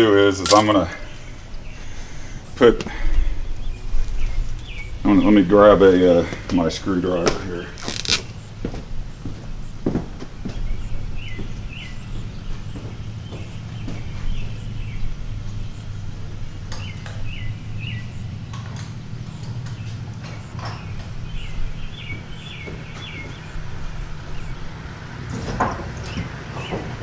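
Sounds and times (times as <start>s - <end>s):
low steady hum: 0.0s - 25.2s
birds chirping: 0.0s - 27.0s
tools and wire clicking: 0.4s - 0.8s, 18.5s - 20.9s.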